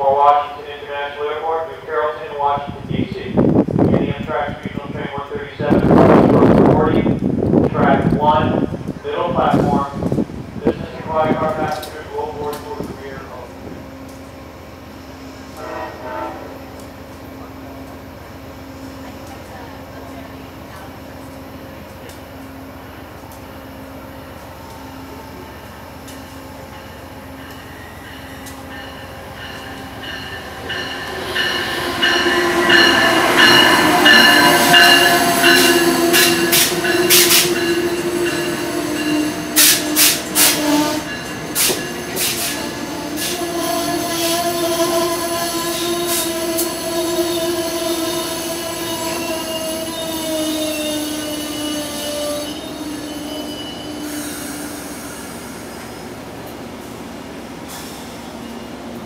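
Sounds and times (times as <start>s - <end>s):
passenger train rolling past: 0.0s - 59.0s
wheels and brakes squealing: 29.6s - 56.2s.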